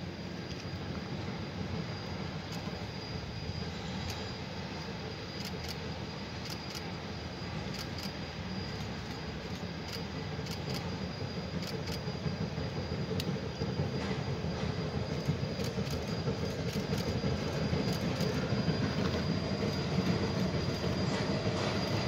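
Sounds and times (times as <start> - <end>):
train rumbling: 0.0 - 22.0
sharp track clicks: 13.1 - 22.0.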